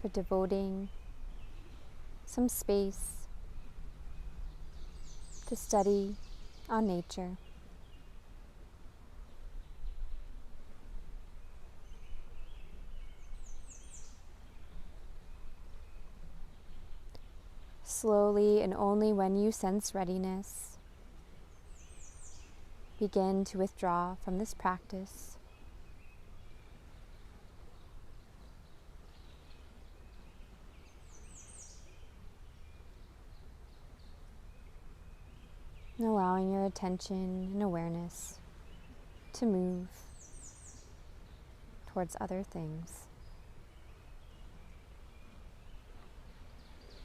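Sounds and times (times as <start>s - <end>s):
low outdoor rumble: 0.0s - 13.5s
low outdoor background noise: 0.0s - 47.0s
bird chirping: 0.1s - 8.2s, 11.3s - 18.0s, 21.3s - 24.6s, 25.2s - 47.0s
faint bird chirps: 36.7s - 47.0s.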